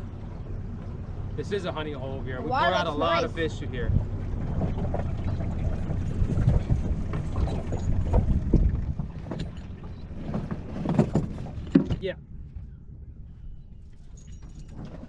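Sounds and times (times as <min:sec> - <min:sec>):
wind buffeting microphone: 0:03.1 - 0:15.0.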